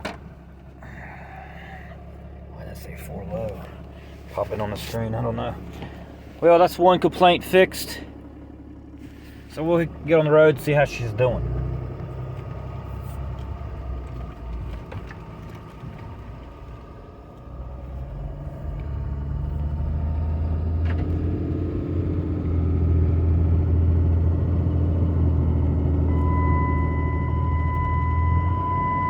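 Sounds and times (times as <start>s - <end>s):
diesel truck engine running: 0.0s - 29.0s
steady high-pitched tone: 26.0s - 29.0s.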